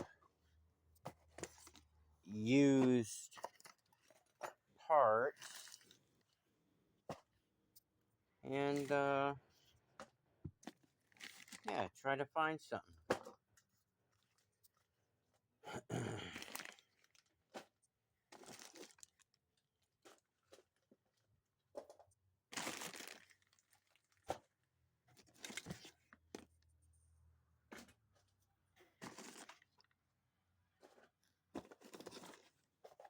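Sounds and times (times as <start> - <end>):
plastic bags rustling and crinkling: 22.6 - 23.6.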